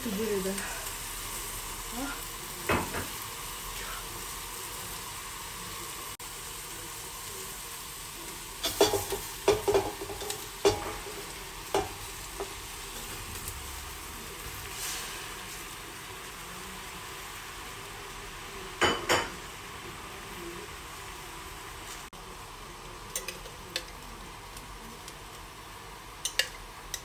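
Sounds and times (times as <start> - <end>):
food sizzling in a frying pan: 0.0 - 27.0
utensil knocking on a pan: 8.7 - 11.1.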